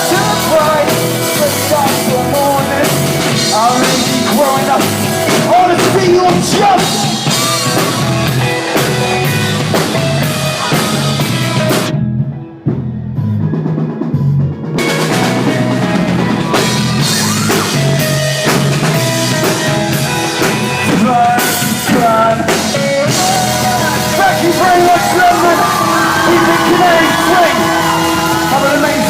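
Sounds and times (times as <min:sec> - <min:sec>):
drums: 0:00.0 - 0:29.0
live band playing pop-rock: 0:00.0 - 0:29.0.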